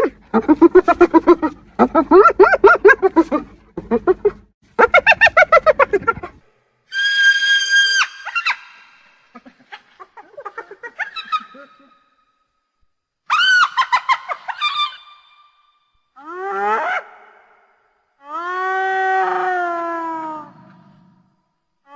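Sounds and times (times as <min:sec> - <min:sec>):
hyena giggling: 0:00.0 - 0:06.5, 0:09.3 - 0:12.0
hyena high squeal: 0:06.9 - 0:09.2.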